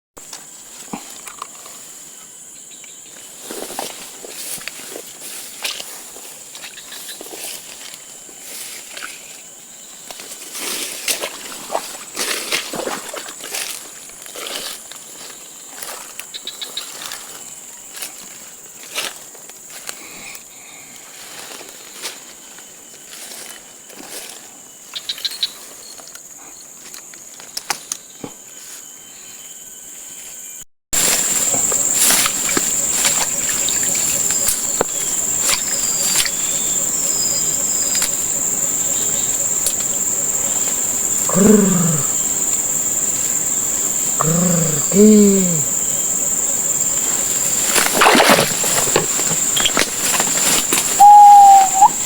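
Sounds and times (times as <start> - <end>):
insect drone: 0.2 - 52.0
brushing through vegetation: 31.0 - 41.2, 45.6 - 52.0
high-pitched insect drone: 31.0 - 52.0.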